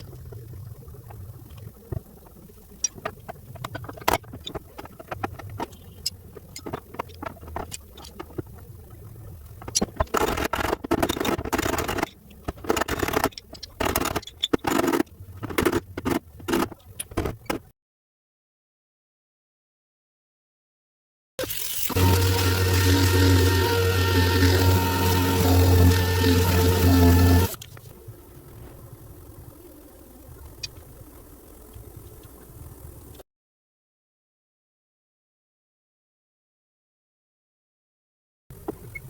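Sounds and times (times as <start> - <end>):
rough scraping strokes: 21.6 - 27.6.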